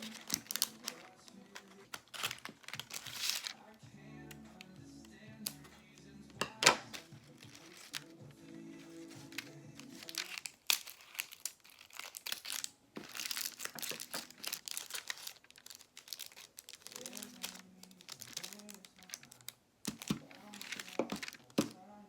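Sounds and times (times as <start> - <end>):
packaging wrap crackling: 0.0 - 3.8, 5.4 - 22.0
background music: 0.0 - 10.5, 16.8 - 22.0.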